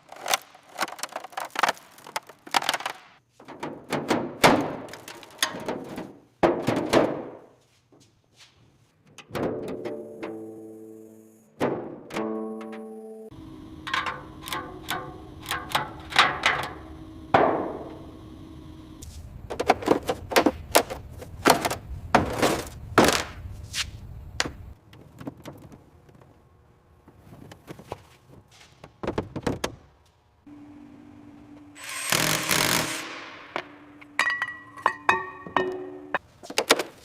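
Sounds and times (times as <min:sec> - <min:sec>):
low steady hum: 0:12.4 - 0:20.3
irregular knocks and thuds: 0:28.8 - 0:29.9.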